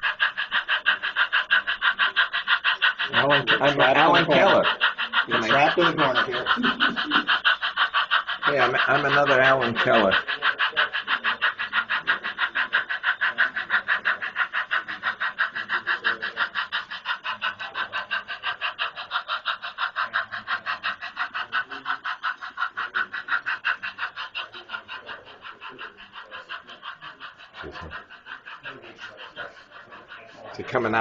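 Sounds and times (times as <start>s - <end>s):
model train clicking on track: 0.0s - 31.0s.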